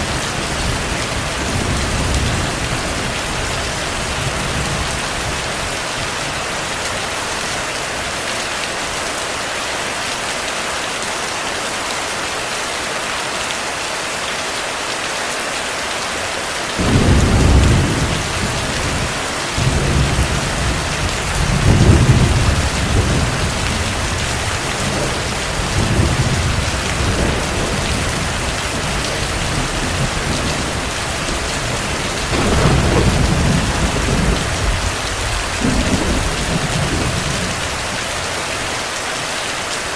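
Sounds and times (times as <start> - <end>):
heavy rain: 0.0 - 39.9
deep rolling thunder: 16.8 - 38.0.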